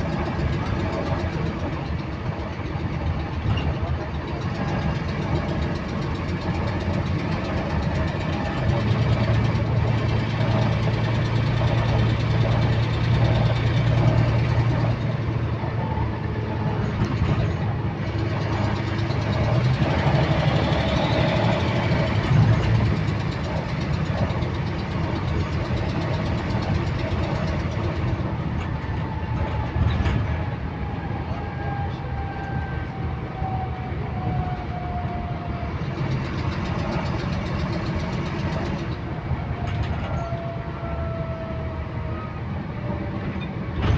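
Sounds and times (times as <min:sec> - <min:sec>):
bus engine humming: 0:00.0 - 0:43.9
repetitive clicking: 0:16.8 - 0:28.8.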